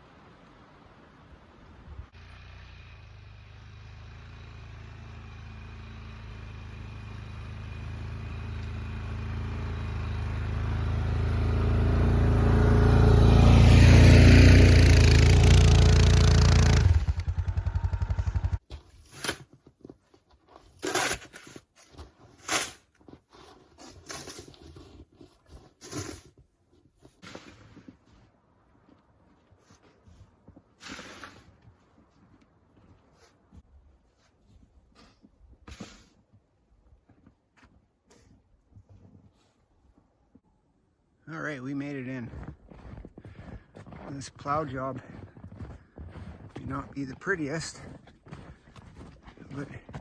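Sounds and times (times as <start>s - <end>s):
quad engine plowing snow: 2.0s - 19.5s, 20.5s - 28.3s, 29.6s - 32.3s, 34.9s - 36.3s, 41.4s - 50.0s.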